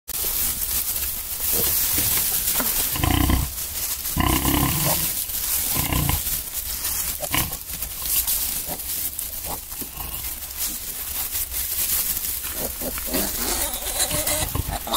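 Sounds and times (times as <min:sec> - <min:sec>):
pigs grunting and squealing: 0:02.7 - 0:06.3, 0:07.1 - 0:10.4, 0:12.5 - 0:14.9.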